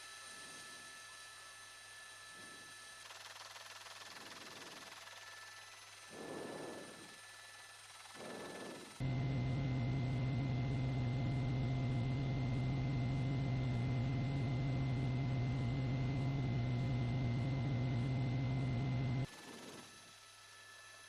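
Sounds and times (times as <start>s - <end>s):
engine drone: 8.0s - 19.4s.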